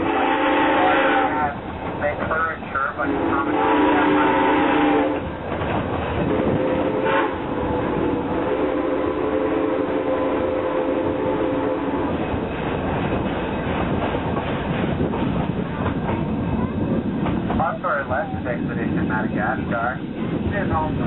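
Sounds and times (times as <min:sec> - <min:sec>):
steam train running on track: 0:00.0 - 0:21.0.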